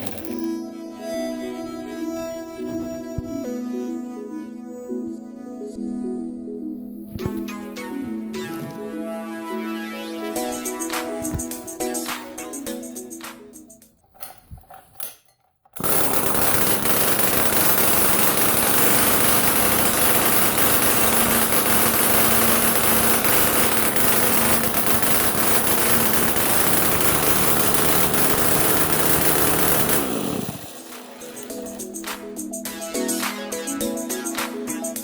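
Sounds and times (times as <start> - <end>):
music: 0.4 - 13.9, 31.4 - 35.0
two-stroke engine running: 15.8 - 31.9.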